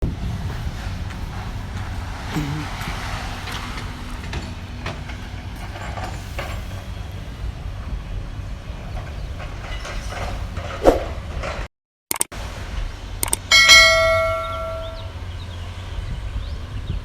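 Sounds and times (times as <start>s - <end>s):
excavator diesel engine rumbling: 0.0s - 11.7s, 12.4s - 17.0s
demolition clanks and knocks: 0.3s - 7.2s, 8.8s - 11.7s.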